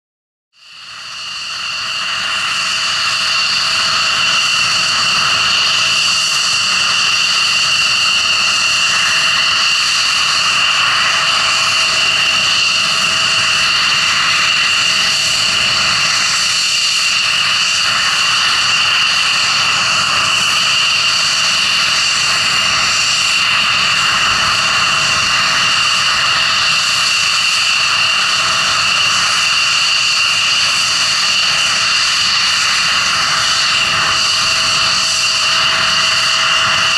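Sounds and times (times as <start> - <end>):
jet engine whine and roar: 0.6 - 36.9.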